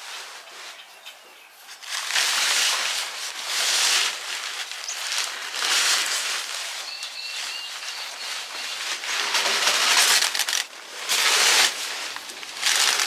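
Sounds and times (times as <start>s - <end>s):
rustling: 1.6s - 13.0s
faint high chirp: 6.8s - 9.0s.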